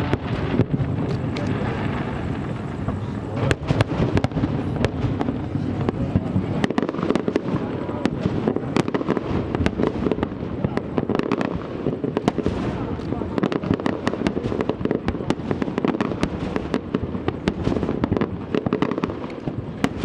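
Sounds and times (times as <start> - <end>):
low rumble: 0.0 - 6.7
fireworks bangs and crackles: 0.0 - 20.0.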